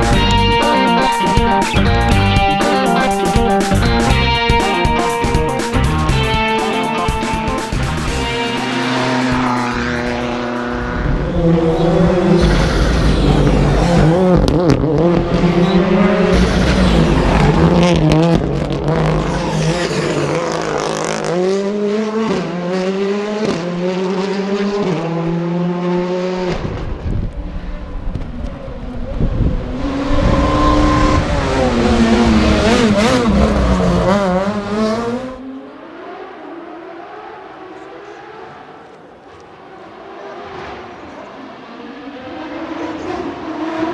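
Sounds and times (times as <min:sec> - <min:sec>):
car engine revving: 0:00.0 - 0:27.6, 0:29.6 - 0:43.9.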